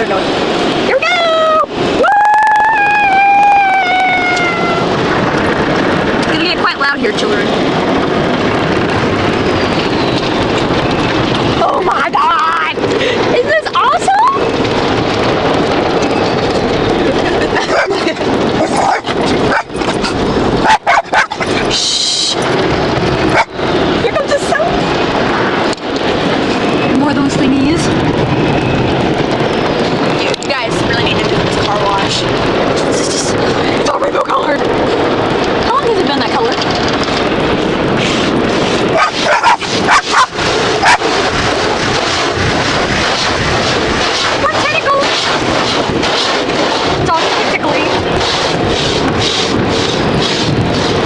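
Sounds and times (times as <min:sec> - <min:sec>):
car wash spraying and scrubbing: 0:17.0 - 0:27.8, 0:30.5 - 0:51.0
dog barking: 0:17.6 - 0:18.0, 0:18.6 - 0:19.8, 0:20.6 - 0:21.4, 0:23.3 - 0:23.5, 0:39.0 - 0:41.1.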